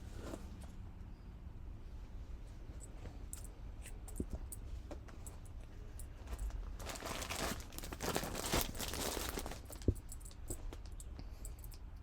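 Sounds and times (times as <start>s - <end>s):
bag crinkling and rustling: 6.2s - 10.0s.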